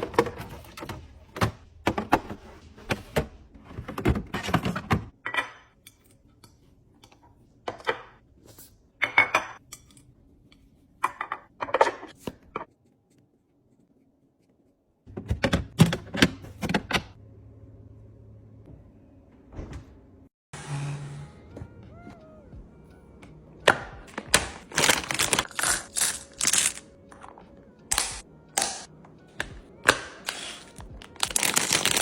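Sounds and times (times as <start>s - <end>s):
containers and bottles clattering: 24.0s - 27.4s.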